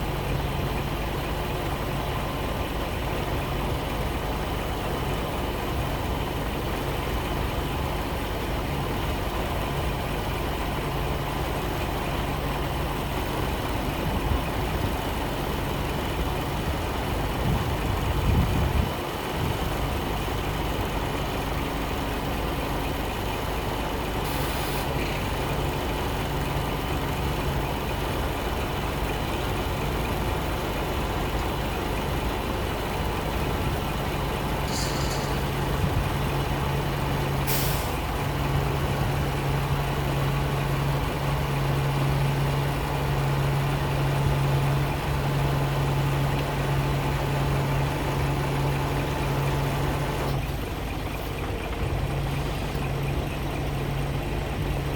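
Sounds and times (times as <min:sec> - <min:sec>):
truck diesel engine idling: 0:00.0 - 0:54.9
truck air hisses: 0:24.2 - 0:25.0, 0:34.6 - 0:35.7, 0:37.4 - 0:38.0.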